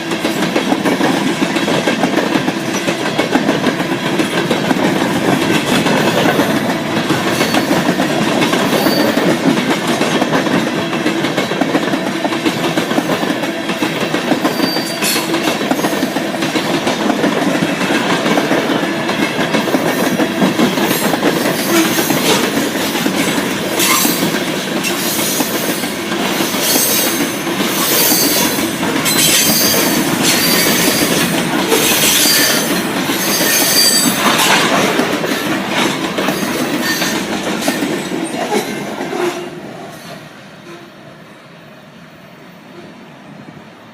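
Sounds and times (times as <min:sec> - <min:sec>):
wheels clicking over rail joints: 0:00.0 - 0:39.2
freight train wheels rumbling: 0:00.0 - 0:43.9
high-pitched wheel squeal: 0:08.8 - 0:09.2, 0:14.5 - 0:15.3, 0:27.8 - 0:31.1, 0:31.9 - 0:34.2.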